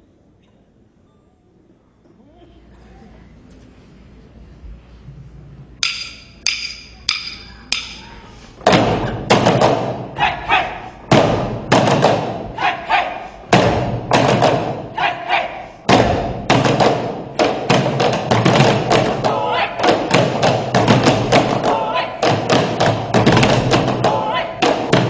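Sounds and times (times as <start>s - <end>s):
deep drum thumps: 8.6s - 12.6s, 13.4s - 15.0s, 15.8s - 25.0s.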